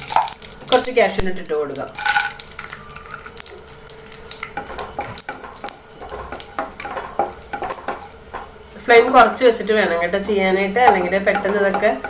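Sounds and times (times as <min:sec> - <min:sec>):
nuts sizzling in hot fat: 0:00.0 - 0:12.0
spatula knocking and scraping pan: 0:04.5 - 0:12.0.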